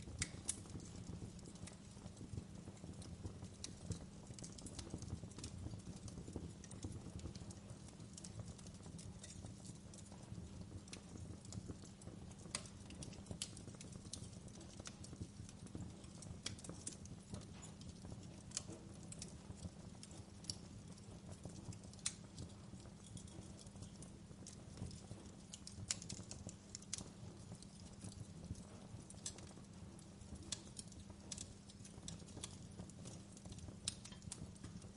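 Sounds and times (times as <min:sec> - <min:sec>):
fire crackling and popping: 0:00.0 - 0:34.9
low rumble of flames: 0:00.0 - 0:34.9.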